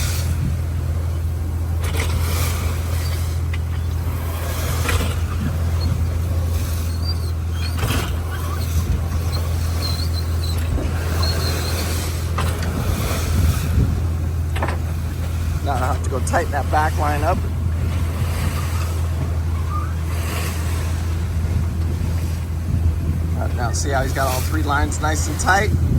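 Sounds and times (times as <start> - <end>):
boat engine drone: 0.0 - 25.9
faint high squeaks: 2.9 - 12.2, 18.6 - 20.2.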